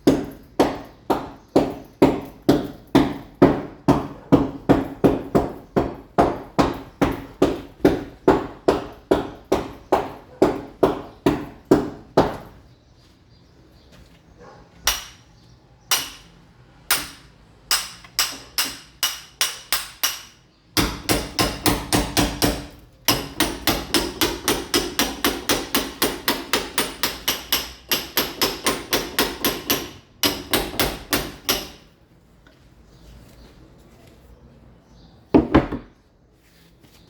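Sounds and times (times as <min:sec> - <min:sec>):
hammer chipping masonry wall: 0:00.0 - 0:12.6, 0:14.8 - 0:15.3, 0:15.9 - 0:32.0.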